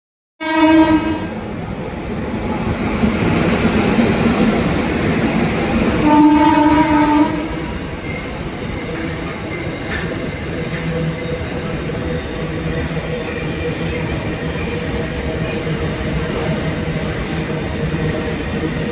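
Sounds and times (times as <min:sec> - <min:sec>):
train horn blasts: 0:00.4 - 0:01.3, 0:06.0 - 0:07.7
running train rumble: 0:00.5 - 0:18.9.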